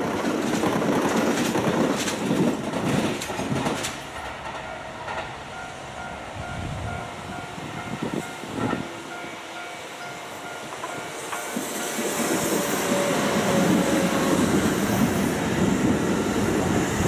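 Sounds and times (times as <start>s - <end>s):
wheels clattering over rail joints: 0.0s - 5.4s
electric train passing: 0.0s - 17.0s.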